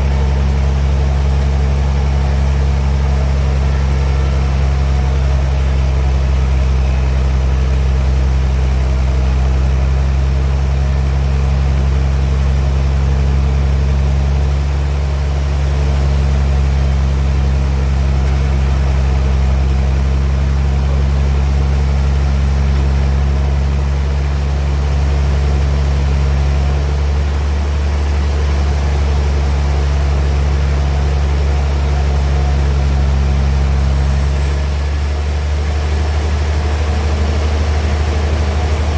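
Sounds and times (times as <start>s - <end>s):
sawmill machinery humming: 0.0s - 38.9s.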